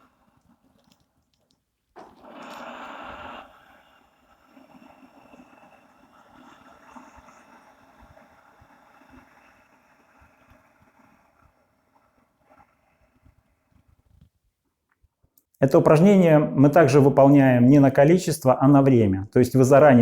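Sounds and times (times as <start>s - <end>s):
person breathing: 2.0s - 14.0s.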